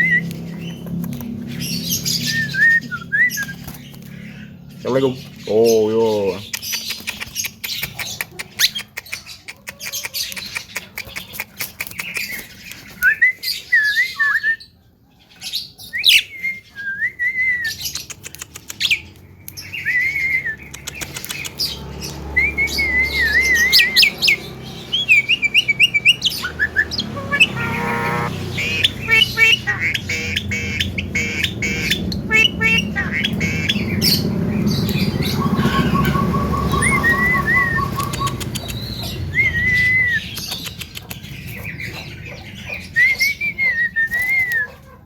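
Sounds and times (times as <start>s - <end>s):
bird chirps: 0.0s - 14.4s, 17.4s - 44.8s
bird squawk: 22.5s - 39.5s.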